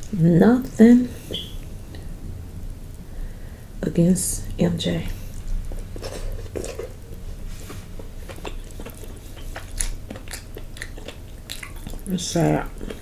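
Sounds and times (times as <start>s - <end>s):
person chewing and smacking: 5.3s - 13.0s.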